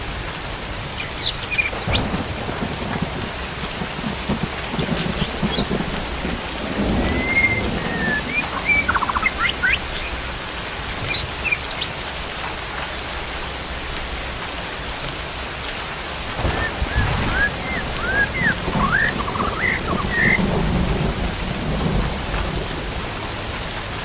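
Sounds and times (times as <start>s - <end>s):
steady rain: 0.0s - 24.0s
songbirds chirping: 0.5s - 12.7s, 16.3s - 22.0s
low rumble of thunder: 1.3s - 11.2s, 16.2s - 24.0s.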